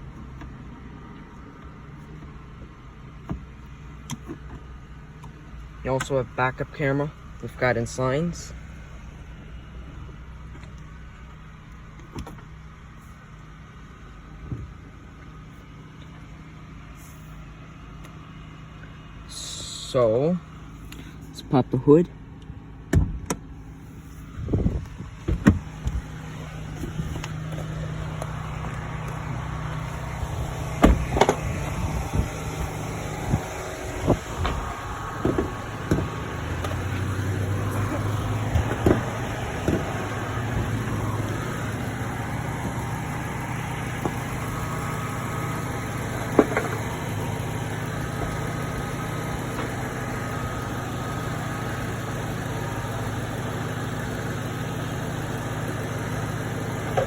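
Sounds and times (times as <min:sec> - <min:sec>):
car engine idling: 0:00.0 - 0:57.0
car hood clicks and knocks: 0:03.2 - 0:05.4, 0:22.9 - 0:23.5, 0:24.8 - 0:29.2, 0:30.7 - 0:32.7, 0:33.3 - 0:41.4, 0:46.3 - 0:46.9.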